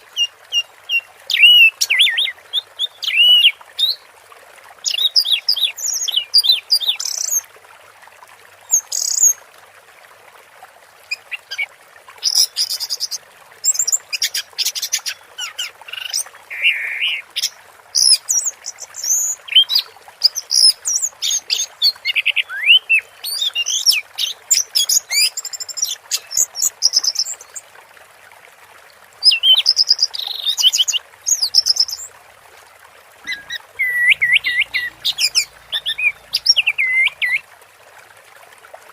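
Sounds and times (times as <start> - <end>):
thrush singing: 33.2 - 37.4.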